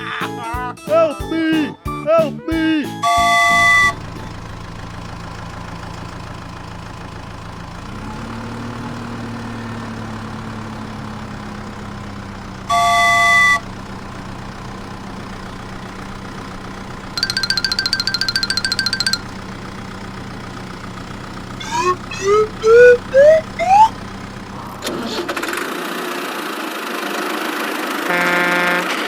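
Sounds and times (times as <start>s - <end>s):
horn honk: 3.0s - 4.1s, 12.7s - 13.7s, 28.0s - 29.0s
cartoon vehicle engine: 3.0s - 29.0s.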